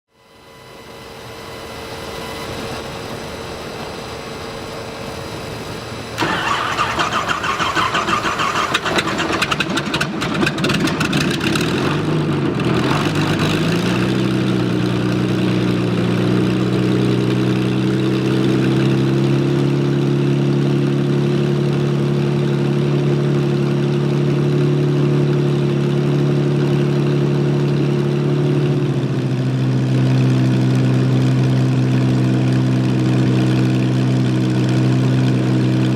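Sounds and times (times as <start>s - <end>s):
aircraft engine starting and idling: 0.3s - 35.9s
starter cranking: 6.2s - 11.5s.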